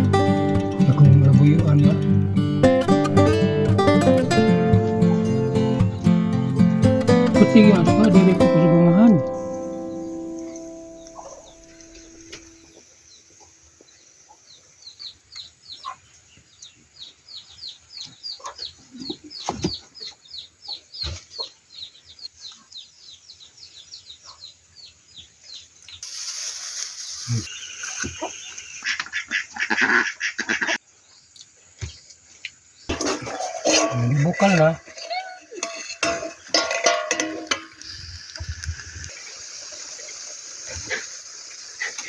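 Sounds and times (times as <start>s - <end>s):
poultry peeping chirps: 9.8s - 26.0s
loud hissing rush: 26.0s - 28.0s, 37.4s - 42.0s.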